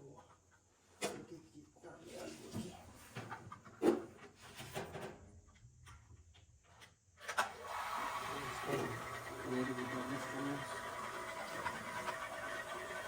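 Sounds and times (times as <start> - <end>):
small electric motor humming: 7.6 - 13.0.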